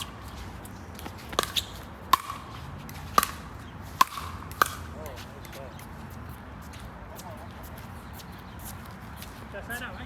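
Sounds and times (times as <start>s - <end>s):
paddles striking pickleball: 1.0s - 5.6s.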